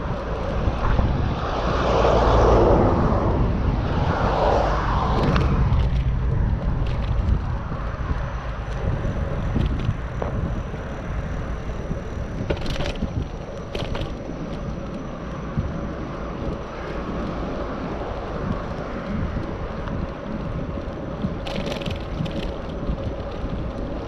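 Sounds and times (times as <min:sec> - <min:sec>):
bicycle rattles: 0:00.0 - 0:02.3, 0:03.8 - 0:24.0
bicycle tyres on road: 0:00.0 - 0:24.0
wind over microphone: 0:00.0 - 0:24.0.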